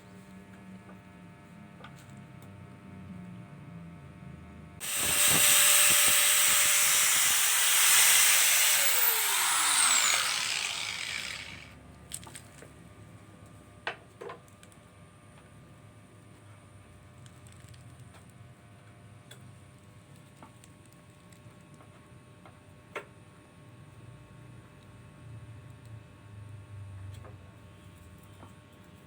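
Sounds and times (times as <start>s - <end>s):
electric drill boring plastic pipe: 4.8s - 11.7s.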